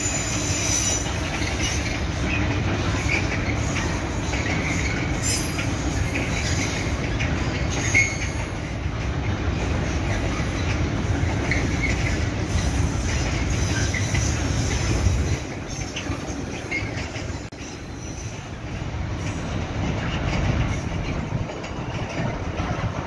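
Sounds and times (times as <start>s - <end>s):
wheels squealing: 0.0s - 8.7s, 10.0s - 18.5s
train wheels rumbling: 0.0s - 23.0s.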